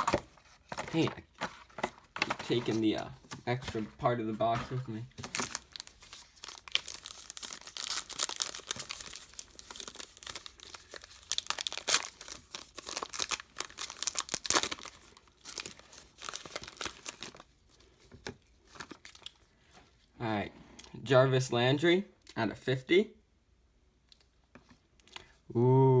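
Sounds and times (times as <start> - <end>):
plastic wrapping crinkling and tearing: 4.4 - 17.9.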